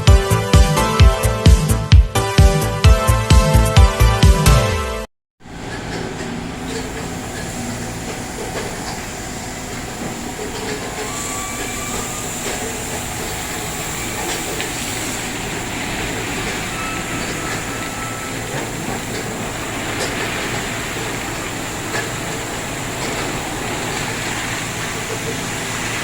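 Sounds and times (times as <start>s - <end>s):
car wash machinery rushing: 5.4s - 26.0s.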